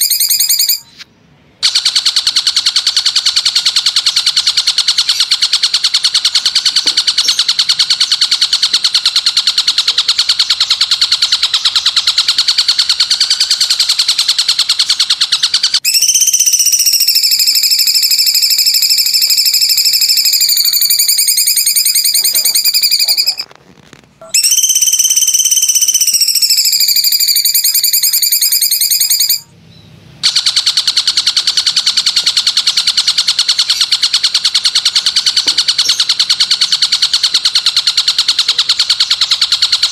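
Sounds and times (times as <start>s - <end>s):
long whistle-like bird notes: 0.0s - 0.9s, 12.9s - 23.4s, 24.4s - 29.5s.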